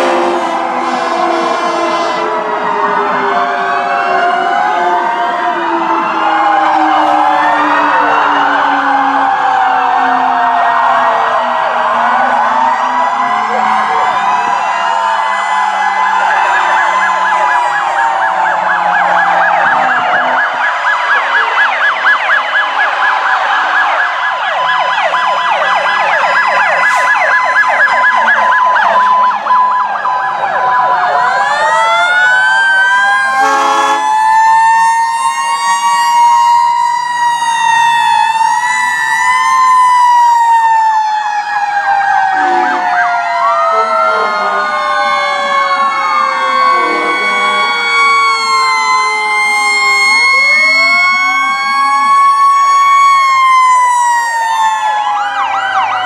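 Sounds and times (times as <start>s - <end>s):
horn blast: 0.0s - 2.4s, 33.4s - 34.2s, 46.7s - 47.5s
fire engine sirens: 0.0s - 56.0s.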